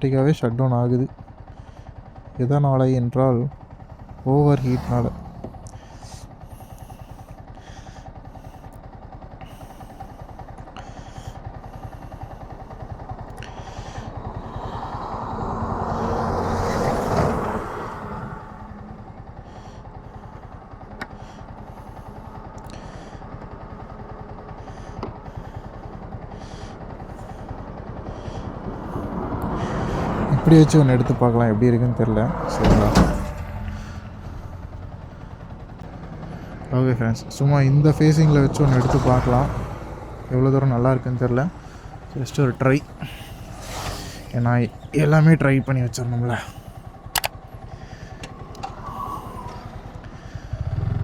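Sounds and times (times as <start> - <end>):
motorcycle engine idling: 0.0 - 51.0
vehicle passing by: 3.8 - 8.0, 10.8 - 51.0
handling clicks and knocks: 47.1 - 47.4.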